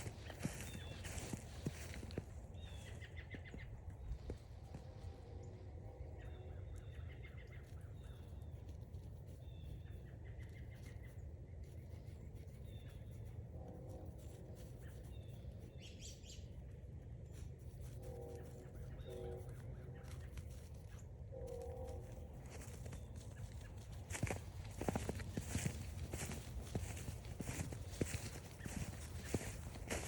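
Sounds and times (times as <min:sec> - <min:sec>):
steady low rumble: 0:11.1 - 0:30.0
lower bird calls: 0:21.4 - 0:30.0.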